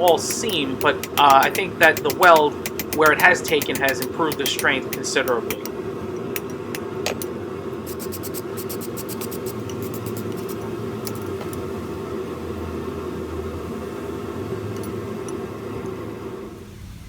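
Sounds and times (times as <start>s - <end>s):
forge rushing noise: 0.0s - 10.6s.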